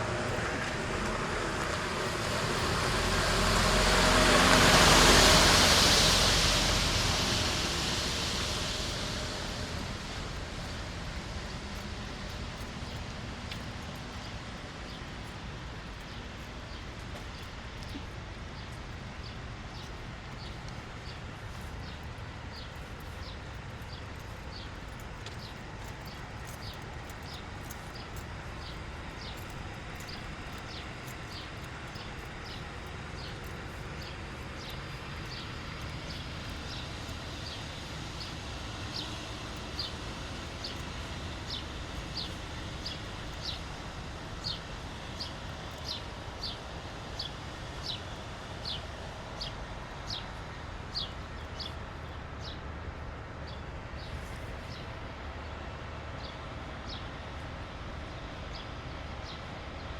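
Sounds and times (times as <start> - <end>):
footsteps on wet pavement: 0.0 - 46.6
distant city traffic rumble: 0.0 - 59.9.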